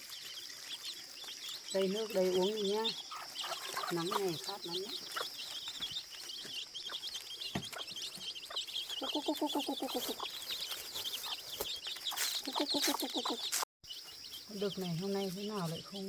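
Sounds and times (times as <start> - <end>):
high-pitched chirping: 0.0 - 16.0
hen clucking: 0.6 - 13.6.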